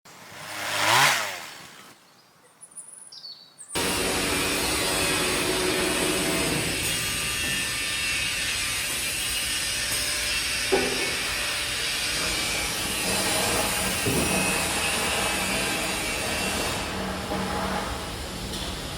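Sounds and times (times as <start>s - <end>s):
woodworking machinery running: 3.8s - 18.9s.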